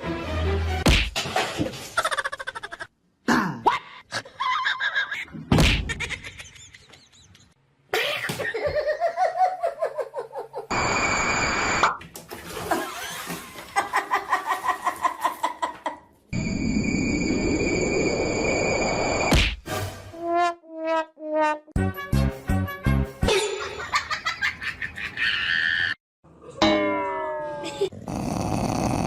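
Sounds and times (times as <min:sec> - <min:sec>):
people talking: 0:26.6 - 0:27.9.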